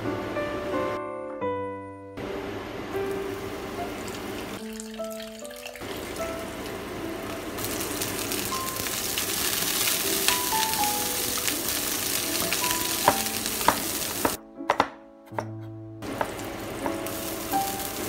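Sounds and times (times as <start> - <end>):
food sizzling in hot oil: 3.1 - 14.4, 16.1 - 18.0
wooden spatula knocking on pan: 12.4 - 17.2.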